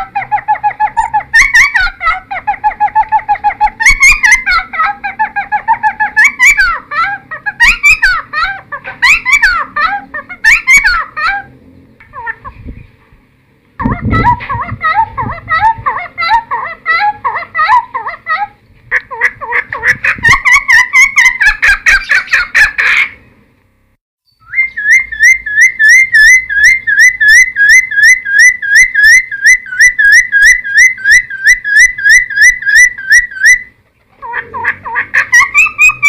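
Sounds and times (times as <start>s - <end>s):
bird whistling: 2.7s - 4.6s, 7.5s - 8.3s, 10.4s - 11.1s, 24.3s - 33.7s, 35.3s - 36.0s.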